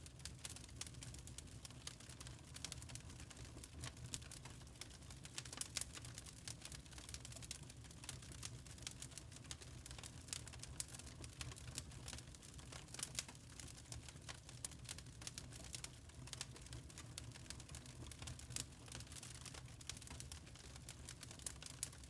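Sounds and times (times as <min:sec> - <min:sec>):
charcoal fire crackling: 0:00.0 - 0:22.0.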